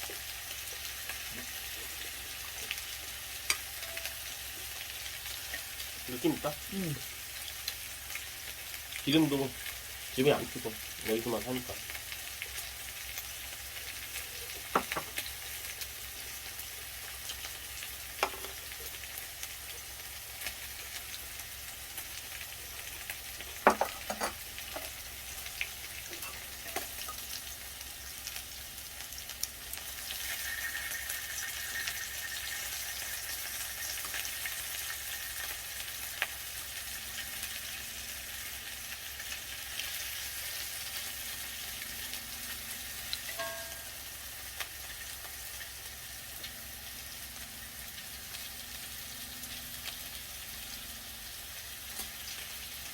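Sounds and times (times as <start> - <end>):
meat sizzling in a pan: 0.0 - 52.9.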